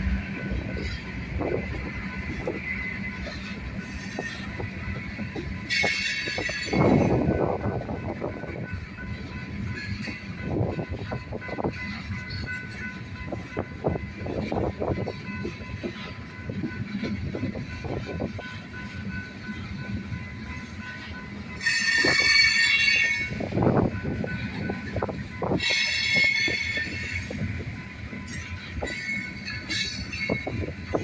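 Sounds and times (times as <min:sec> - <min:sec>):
train rumble: 0:00.0 - 0:31.0
high-pitched wheel squeal: 0:05.7 - 0:07.2, 0:21.6 - 0:23.4, 0:25.5 - 0:27.4, 0:28.3 - 0:30.6.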